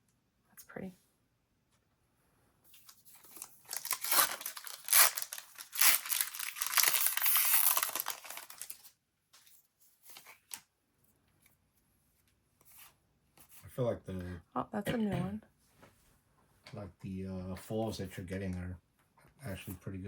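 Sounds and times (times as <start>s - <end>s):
wrapper tearing and crinkling: 2.9s - 8.9s.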